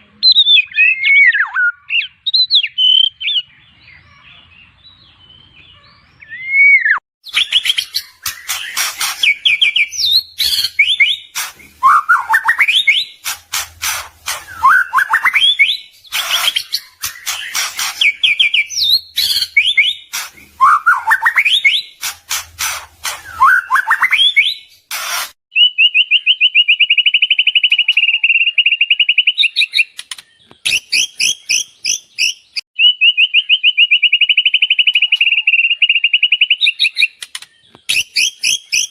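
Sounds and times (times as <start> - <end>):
bird whistling song: 0.2 - 4.0, 5.0 - 38.9
bird fast trills: 7.2 - 25.4.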